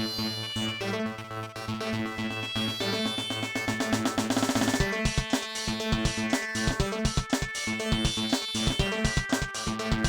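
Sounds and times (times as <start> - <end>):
heavy bass-drum hits: 4.2 - 10.0.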